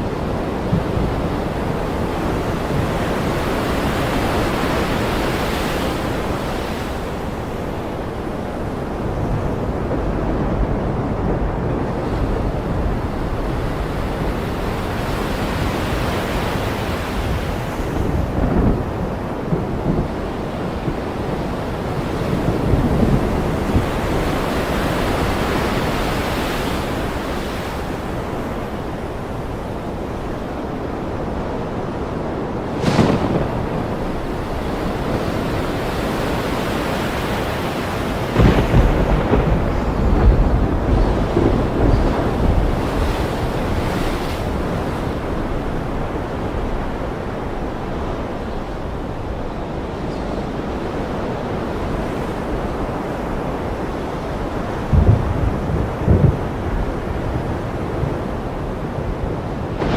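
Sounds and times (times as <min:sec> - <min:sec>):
ocean surf breaking: 0:00.0 - 0:59.9
low rumble of thunder: 0:16.6 - 0:26.0, 0:32.4 - 0:35.9, 0:37.8 - 0:47.0, 0:54.8 - 0:59.9.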